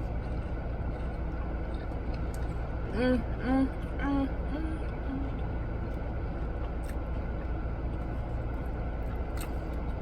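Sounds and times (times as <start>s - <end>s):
person humming: 2.9s - 5.3s.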